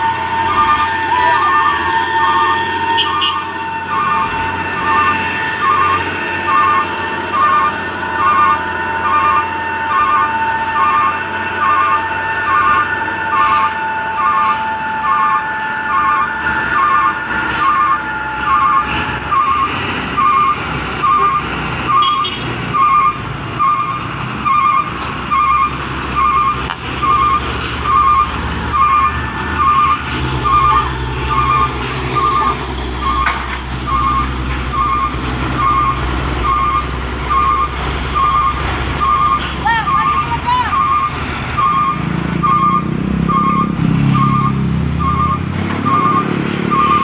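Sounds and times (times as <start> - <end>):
truck engine running: 0.0 - 47.0
truck reversing alarm beeping: 0.0 - 47.0.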